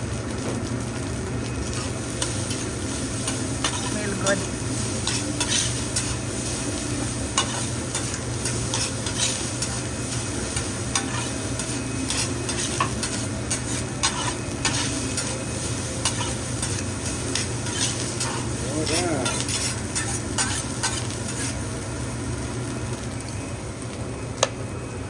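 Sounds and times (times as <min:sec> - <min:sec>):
rice sizzling on griddle: 0:00.0 - 0:25.0
steady low hum: 0:00.8 - 0:25.0
metal spatulas scraping and tapping: 0:05.0 - 0:06.2, 0:07.4 - 0:09.8, 0:10.6 - 0:15.4, 0:16.0 - 0:21.6.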